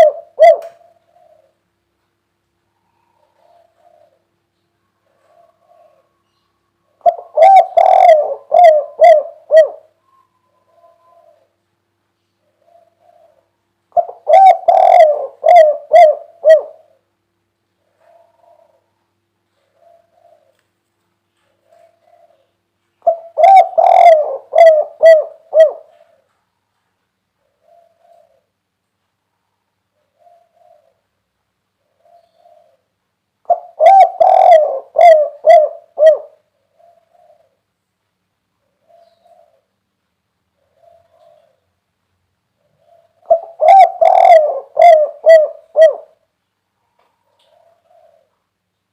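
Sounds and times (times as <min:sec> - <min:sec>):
dove cooing: 0:00.0 - 0:01.7, 0:02.8 - 0:11.6, 0:12.4 - 0:17.1, 0:17.8 - 0:20.8, 0:21.4 - 0:26.4, 0:27.4 - 0:28.6, 0:30.0 - 0:31.2, 0:31.8 - 0:37.7, 0:38.6 - 0:39.8, 0:40.6 - 0:41.8, 0:42.6 - 0:46.3, 0:47.1 - 0:48.6.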